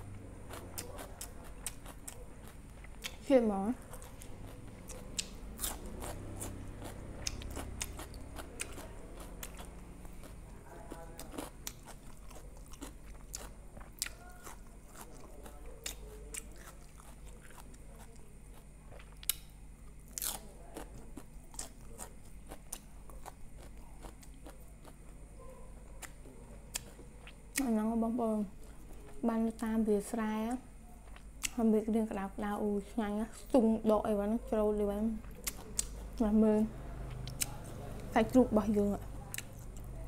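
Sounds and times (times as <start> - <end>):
crunching and chewing vegetables: 0.0 - 40.0
steady low hum: 0.0 - 40.0
wet mouth clicks: 35.2 - 36.2.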